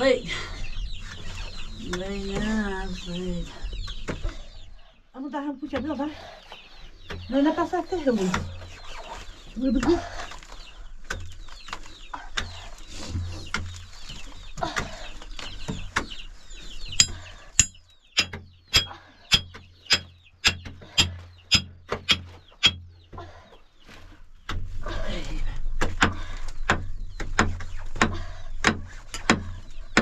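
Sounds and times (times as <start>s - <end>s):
birds chirping: 0.0s - 30.0s
sharp knocks: 17.0s - 22.8s.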